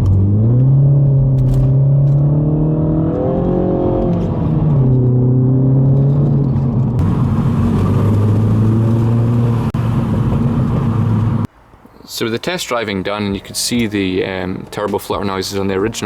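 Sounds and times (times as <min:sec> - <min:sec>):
car engine accelerating: 0:00.0 - 0:11.5.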